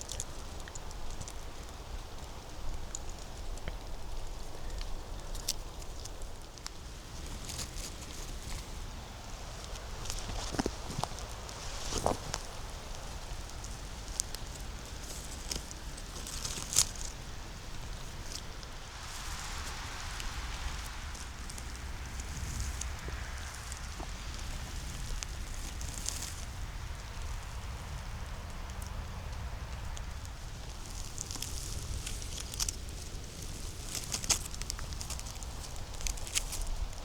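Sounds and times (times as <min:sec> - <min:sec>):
rustling leaves: 0:00.0 - 0:37.0
twigs snapping underfoot: 0:00.0 - 0:37.0
footsteps crunching through leaves: 0:07.0 - 0:26.8, 0:30.4 - 0:37.0.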